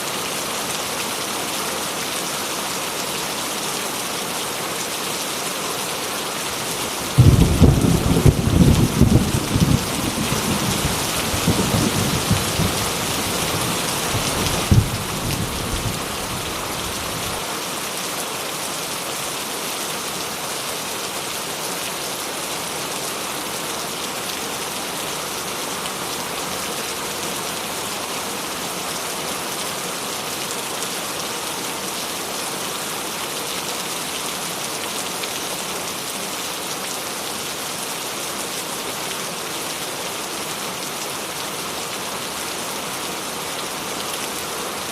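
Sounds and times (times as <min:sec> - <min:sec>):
steady rain falling: 0:00.0 - 0:44.9
thunder rumble: 0:07.1 - 0:16.1
thunder crack: 0:07.2 - 0:10.4.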